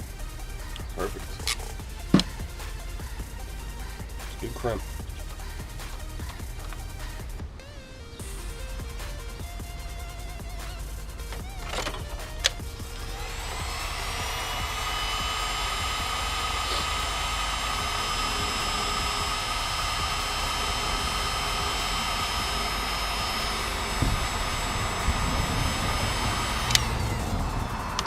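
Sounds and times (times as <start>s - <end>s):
heat gun fan whine: 0.0s - 28.0s
heat gun switch click: 11.3s - 27.2s.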